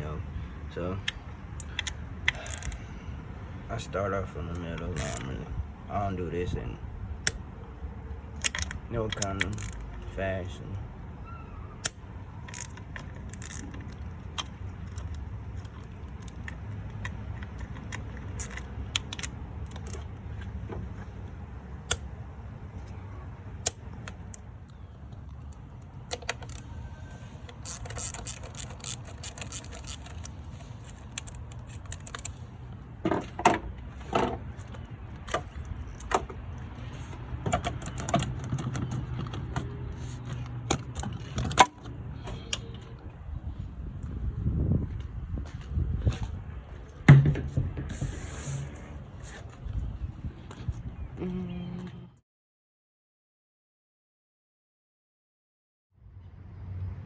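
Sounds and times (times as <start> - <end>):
metallic clicks and clinks of tools: 1.6 - 2.8, 11.8 - 20.1, 27.4 - 32.4
ratchet ticking: 27.5 - 32.3.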